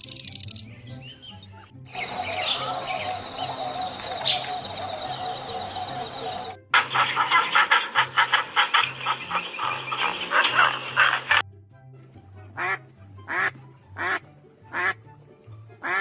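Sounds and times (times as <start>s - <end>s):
fast-pulsing chatter: 2.0s - 11.4s
duck quacks: 6.8s - 11.4s, 12.6s - 15.0s.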